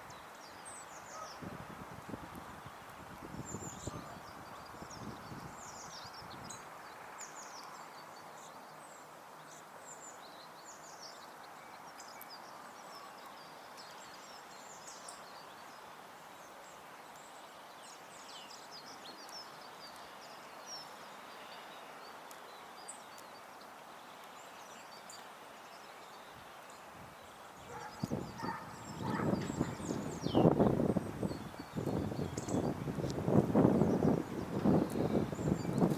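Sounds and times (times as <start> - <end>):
songbirds chirping: 0.0 - 35.9
outdoor background rush: 26.3 - 35.9.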